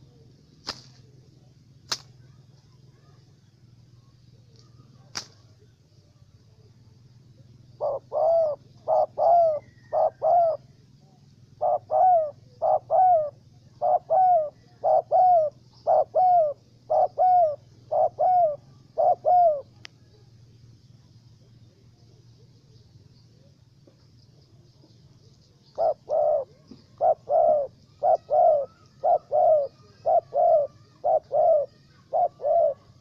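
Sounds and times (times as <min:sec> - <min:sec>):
small birds chirping faintly: 0:00.0 - 0:33.0
dove cooing: 0:07.3 - 0:20.4, 0:21.4 - 0:33.0.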